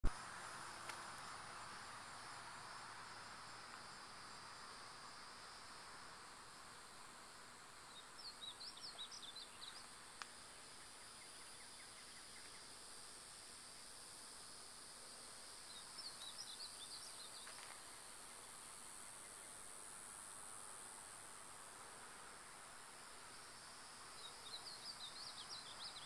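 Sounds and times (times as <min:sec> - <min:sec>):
high insect drone: 0:00.0 - 0:26.0
small bird chirping: 0:07.9 - 0:09.9.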